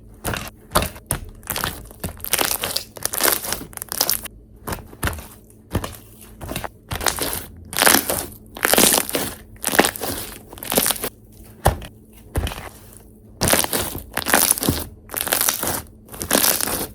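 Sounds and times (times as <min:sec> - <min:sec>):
bead slime squished by hand: 0:01.4 - 0:04.3, 0:06.9 - 0:11.1, 0:13.4 - 0:16.9.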